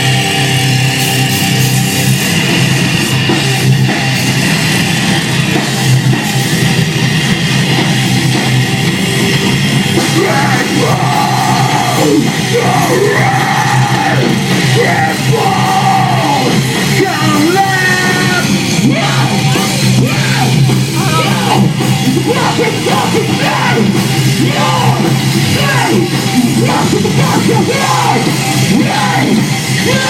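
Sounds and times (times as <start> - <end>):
heavy metal band playing: 0.0 - 30.0
vocalist yelling: 10.0 - 30.0.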